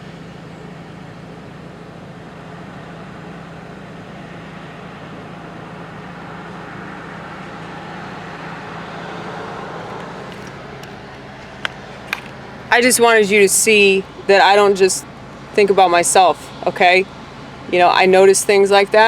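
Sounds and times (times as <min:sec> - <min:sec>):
traffic hum: 0:00.0 - 0:19.0
vehicle passing: 0:04.1 - 0:19.0.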